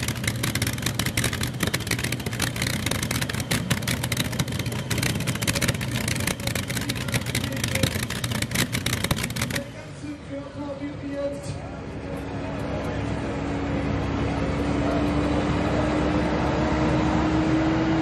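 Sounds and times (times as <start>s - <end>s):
exhaust crackling: 0.0s - 10.1s
tractor engine drone: 0.0s - 18.0s.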